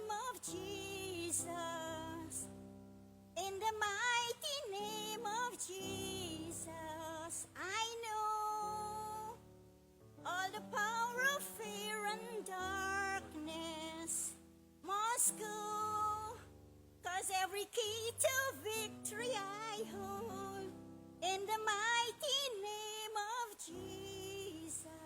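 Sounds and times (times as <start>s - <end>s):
woman singing gospel song: 0.0s - 2.5s, 3.4s - 9.4s, 10.3s - 16.5s, 17.1s - 25.0s.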